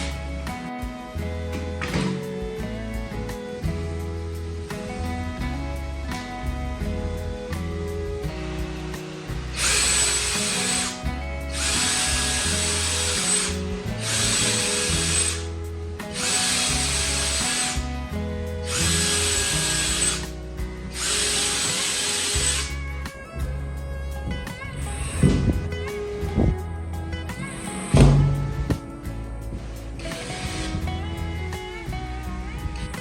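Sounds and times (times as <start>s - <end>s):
background music: 0.0s - 33.0s
power tool running in bursts: 8.4s - 22.9s, 30.0s - 31.0s.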